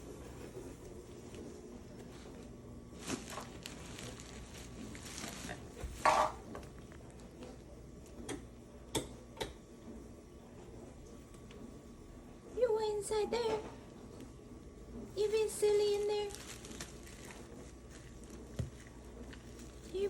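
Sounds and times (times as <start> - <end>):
puppy rustling bags: 1.2 - 7.5, 15.1 - 20.0.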